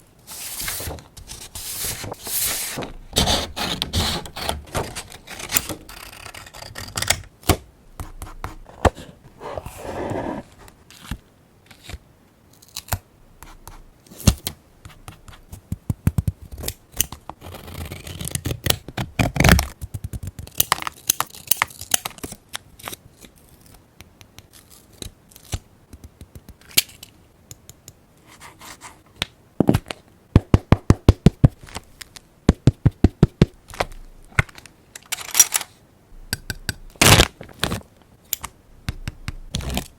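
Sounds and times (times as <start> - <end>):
paper being handled and rubbed: 0.2 - 6.6.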